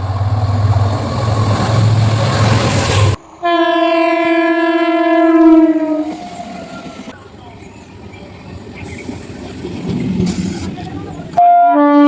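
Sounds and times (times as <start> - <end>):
passing train rumbling: 0.0 - 12.0
train horn: 3.4 - 6.2, 11.4 - 12.0.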